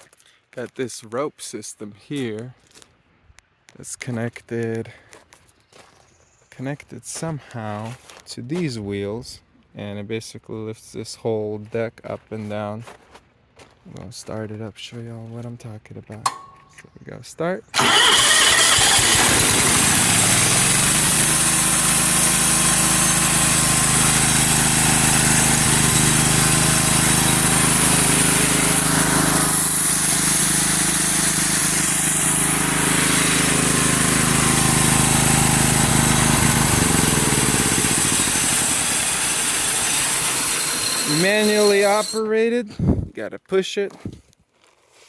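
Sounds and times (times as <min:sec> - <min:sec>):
sawmill engine running: 0:17.8 - 0:42.3.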